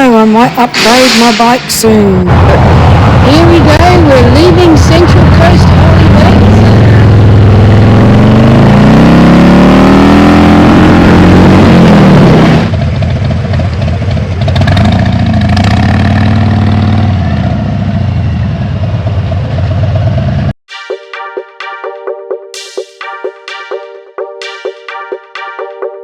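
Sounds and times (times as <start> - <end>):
motorcycle engine running: 3.5 - 20.5.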